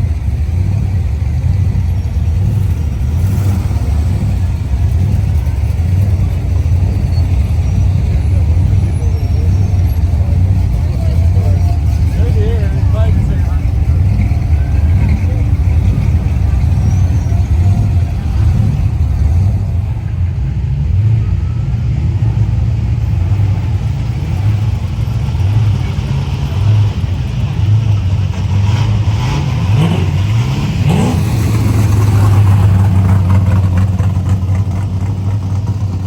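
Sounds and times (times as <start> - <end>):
car engines rumbling: 0.0 - 36.0
engine revving up: 28.3 - 34.9.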